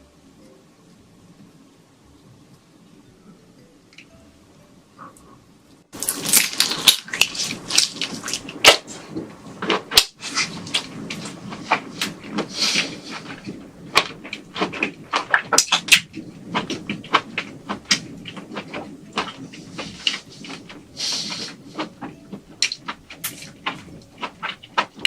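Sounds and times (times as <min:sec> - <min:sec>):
crunching while eating prawn: 0:06.0 - 0:25.0.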